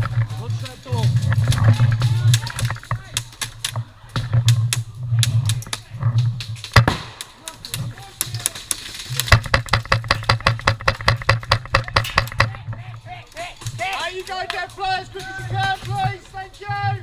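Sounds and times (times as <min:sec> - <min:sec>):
airsoft guns firing: 0:06.7 - 0:07.6.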